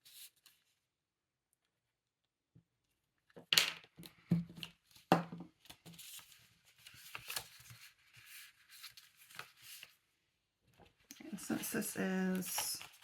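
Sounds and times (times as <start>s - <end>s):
paper rustling: 4.8s - 10.1s, 10.7s - 13.0s.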